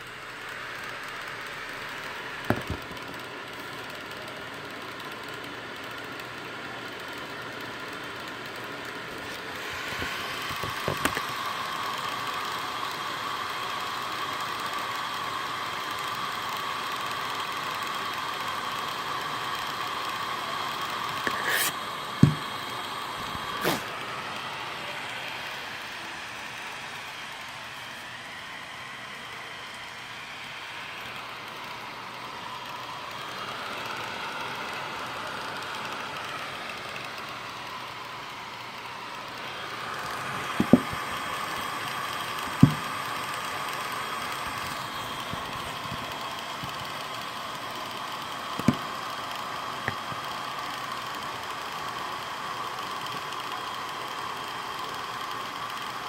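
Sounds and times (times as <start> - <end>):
fan whine: 0.0 - 56.0
laptop cooling fans whooshing: 0.0 - 56.0.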